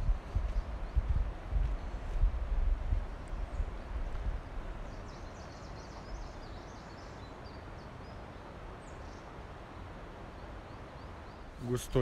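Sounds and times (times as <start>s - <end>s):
wind rumbling on microphone: 0.0s - 6.6s
songbird chirping: 0.0s - 12.0s
steady outdoor hiss: 0.0s - 12.0s.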